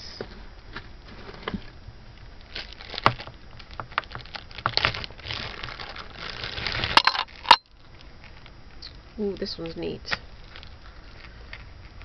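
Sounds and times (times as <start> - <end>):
plastic bags crinkling: 2.2 - 8.6, 9.2 - 12.0
jewelry clicking and clacking: 7.0 - 7.6.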